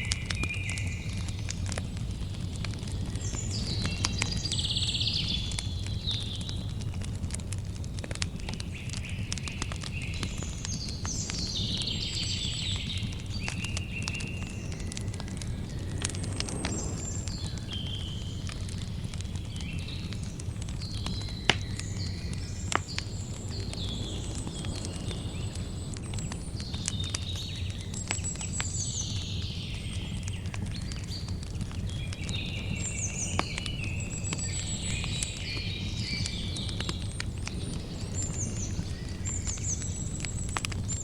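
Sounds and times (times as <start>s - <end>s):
campfire crackling and popping: 0.0s - 41.0s
birds chirping: 8.5s - 20.1s, 20.8s - 29.7s
low steady rumble: 13.2s - 19.4s.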